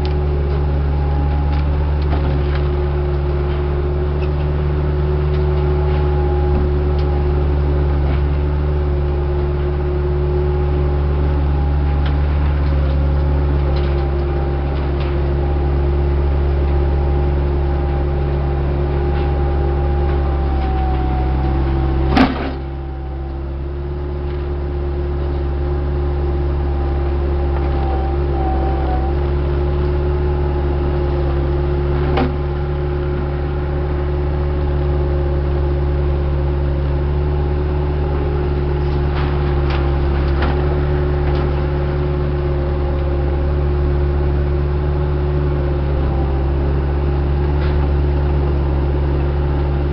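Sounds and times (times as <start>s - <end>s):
diesel engine droning: 0.0s - 49.9s.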